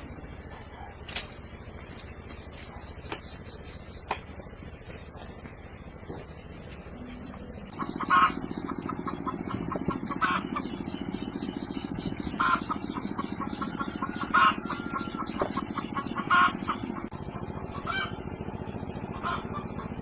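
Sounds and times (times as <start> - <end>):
fast-pulsing low drone: 7.4 - 20.0
chickens clucking: 7.7 - 18.3, 18.9 - 20.0.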